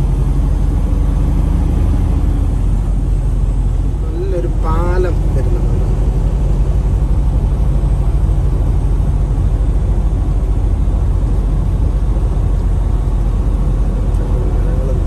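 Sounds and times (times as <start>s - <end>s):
road noise: 0.0s - 15.0s
truck engine rumble: 0.0s - 15.0s.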